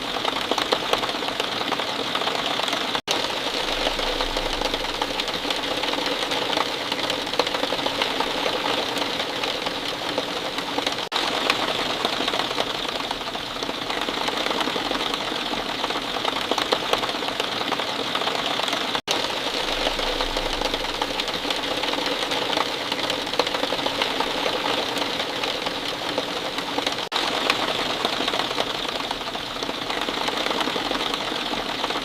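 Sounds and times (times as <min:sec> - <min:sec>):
rain falling: 0:00.0 - 0:32.0.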